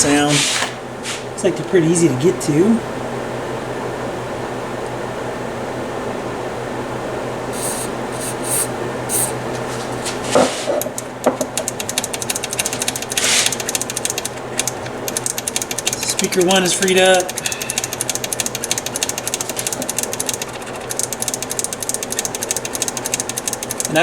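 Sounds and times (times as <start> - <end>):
room heater humming: 0.0 - 24.0
aerosol spray hissing: 7.5 - 9.4
switches clicking: 10.8 - 24.0.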